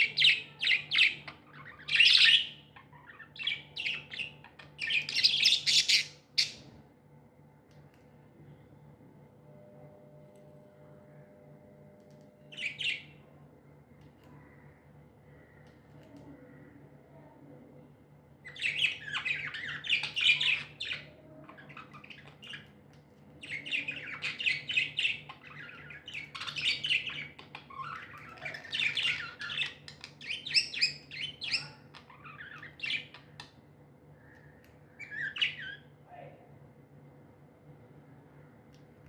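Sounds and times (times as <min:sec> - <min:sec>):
budgerigars chattering and chirping: 0:00.0 - 0:06.7, 0:18.5 - 0:22.7, 0:23.4 - 0:33.5.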